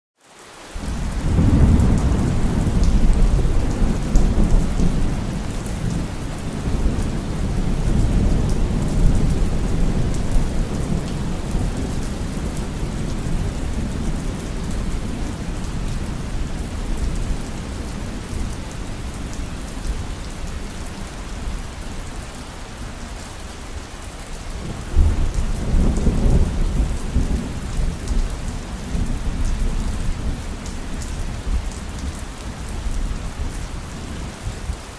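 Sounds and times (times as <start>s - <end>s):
heavy rain falling: 0.2s - 34.9s
rolling thunder: 0.8s - 20.6s, 24.6s - 34.8s.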